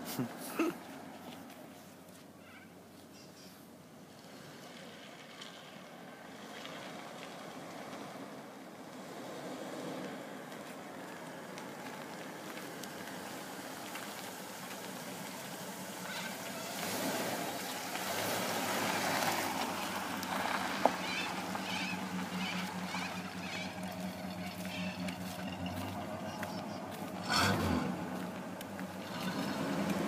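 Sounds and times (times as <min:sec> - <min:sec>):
car engine idling: 0:10.3 - 0:30.0.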